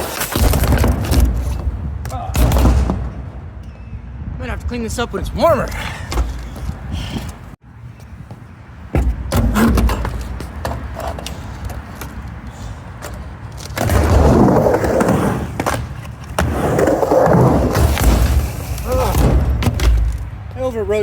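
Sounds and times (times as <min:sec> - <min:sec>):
skateboard wheels rolling on ramp: 0:08.3 - 0:20.5.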